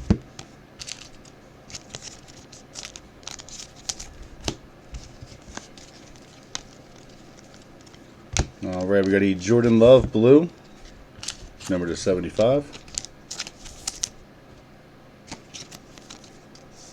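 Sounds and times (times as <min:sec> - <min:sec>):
card wrapper crinkling: 0:00.8 - 0:09.3, 0:10.7 - 0:14.2
cards flipping clicks: 0:12.3 - 0:14.2.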